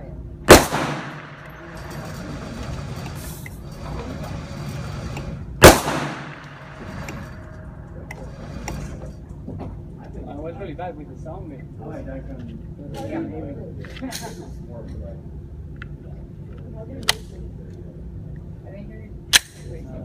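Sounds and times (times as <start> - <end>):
gunshots with echo: 0.5 - 2.3, 5.6 - 7.7.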